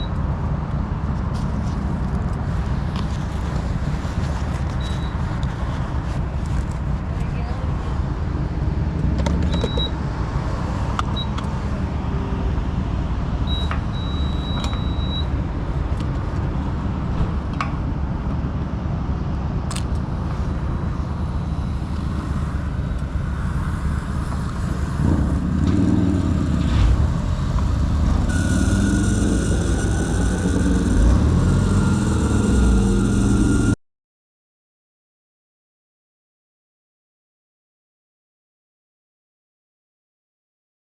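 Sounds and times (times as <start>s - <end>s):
motorcycle engine running: 20.3s - 33.8s
thin steady high tone: 28.3s - 33.8s.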